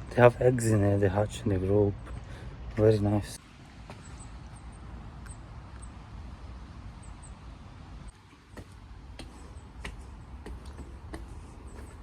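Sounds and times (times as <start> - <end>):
faint high bird chirps: 4.0 - 6.0, 6.9 - 7.5.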